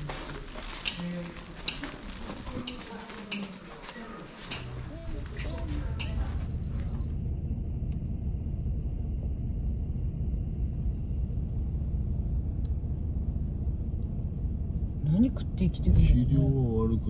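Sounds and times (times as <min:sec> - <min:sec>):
low rumble: 0:04.6 - 0:17.0.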